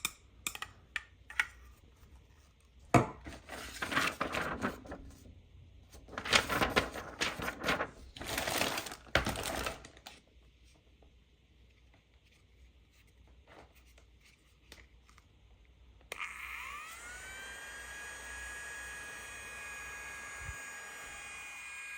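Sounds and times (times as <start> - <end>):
plastic packaging crinkling: 3.3 - 5.0, 6.0 - 10.2.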